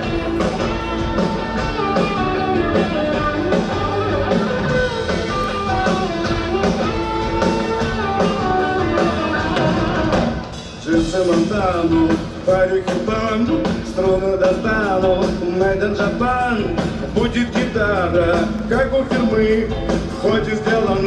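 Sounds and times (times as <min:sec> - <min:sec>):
guitar melody: 0:00.0 - 0:10.7
steady drum beat: 0:00.0 - 0:21.0.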